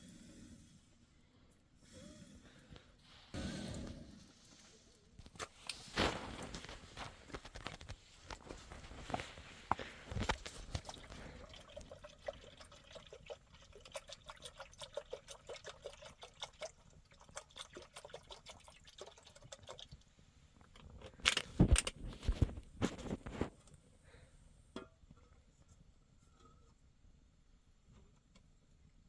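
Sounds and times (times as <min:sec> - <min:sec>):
liquid being poured: 0:08.5 - 0:20.0.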